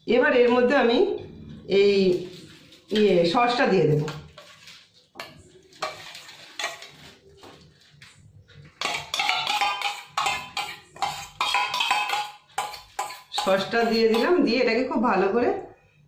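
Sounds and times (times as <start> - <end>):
metal spoon scraping steel bowl: 4.0 - 7.2, 8.8 - 14.5.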